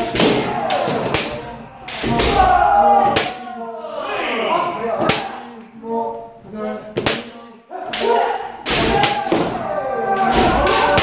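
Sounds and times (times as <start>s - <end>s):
bamboo swords cracking: 0.0s - 3.4s, 7.9s - 11.0s.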